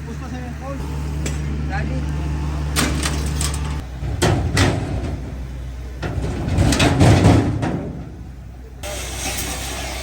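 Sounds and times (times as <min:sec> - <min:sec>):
rumbling and clattering: 0:02.7 - 0:08.4.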